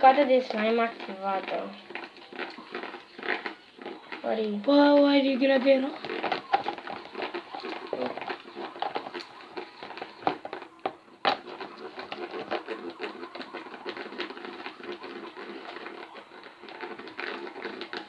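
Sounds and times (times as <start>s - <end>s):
spoon stirring slime in bowl: 0.0s - 18.0s.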